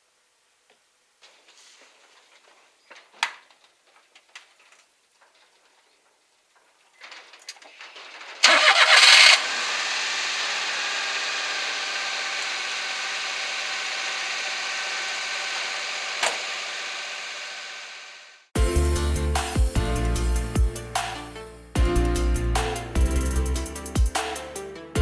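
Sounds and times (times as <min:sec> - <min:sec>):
truck engine idling: 0:08.4 - 0:18.2
starter motor cranking: 0:08.4 - 0:18.3.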